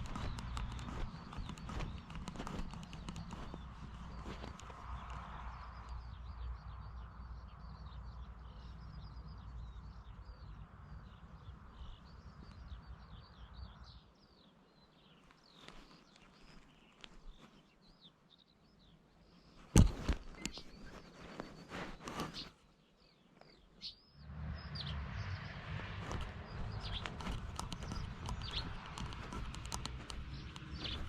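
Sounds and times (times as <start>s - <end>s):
clicks and rustles: 0.0s - 6.0s, 15.3s - 17.6s, 19.6s - 22.6s, 26.0s - 31.0s
small birds chirping: 0.0s - 31.0s
low rumbling noise: 24.2s - 31.0s.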